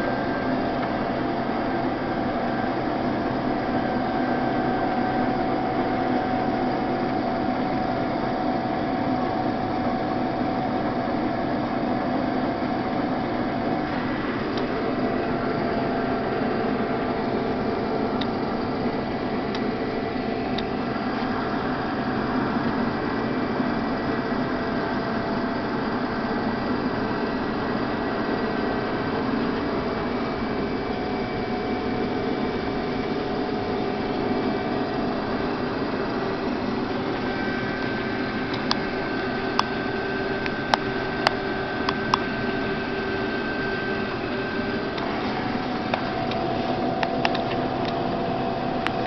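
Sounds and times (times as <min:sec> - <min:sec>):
combine harvester droning: 0:00.0 - 0:49.0.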